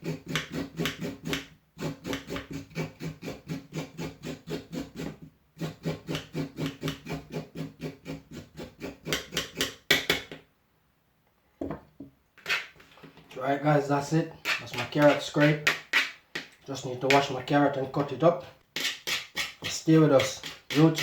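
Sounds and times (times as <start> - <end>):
blade scraping carrot skin: 14.4 - 16.2, 16.8 - 21.0.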